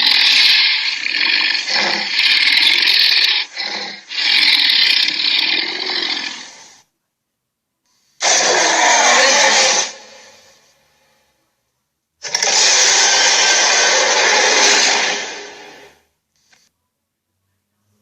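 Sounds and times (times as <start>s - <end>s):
raspy growling creature: 0.0s - 6.8s, 8.2s - 10.4s, 12.2s - 16.0s.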